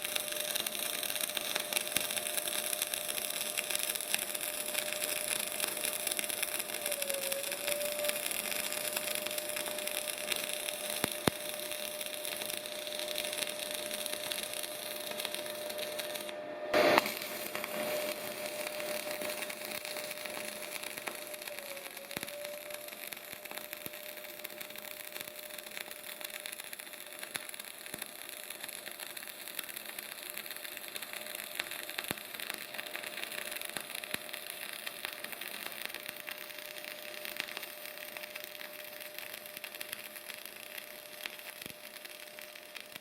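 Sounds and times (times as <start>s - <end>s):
welding arc crackle: 0.0s - 43.0s
high whine: 4.0s - 25.1s.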